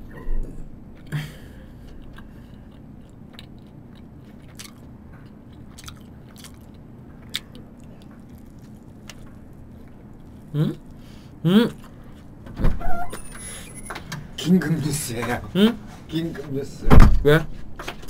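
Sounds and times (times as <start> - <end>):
person chewing toast: 0.9 - 12.4
small crunches and clicks: 3.0 - 11.0.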